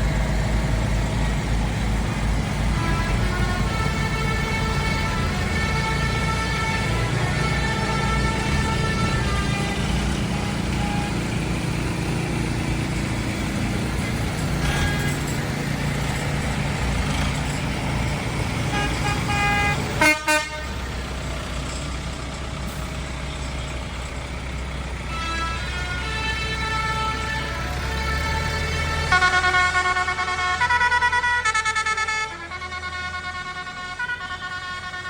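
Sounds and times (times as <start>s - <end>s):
tractor engines running: 0.0s - 35.0s
horns tooting: 2.5s - 12.1s, 13.7s - 21.9s, 25.0s - 35.0s.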